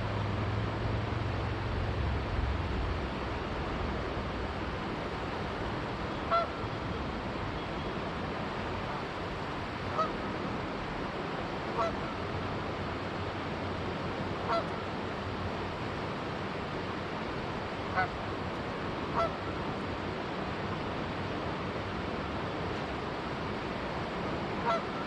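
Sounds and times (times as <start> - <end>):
river water rushing: 0.0 - 25.0
goose honking: 6.3 - 6.6, 11.8 - 12.0, 14.5 - 14.7, 19.2 - 19.4, 24.6 - 24.9.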